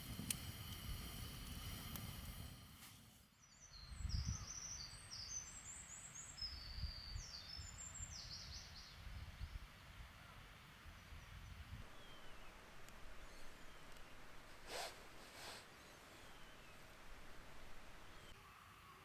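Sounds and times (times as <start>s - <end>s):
low wind-like rumble: 0.0s - 14.5s
small birds chirping: 3.4s - 9.7s.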